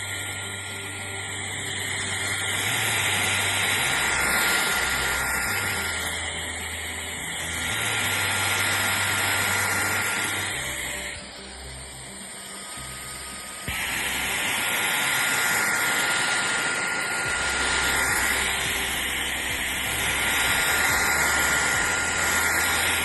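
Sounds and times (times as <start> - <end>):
cordless vacuum running: 0.0 - 23.0.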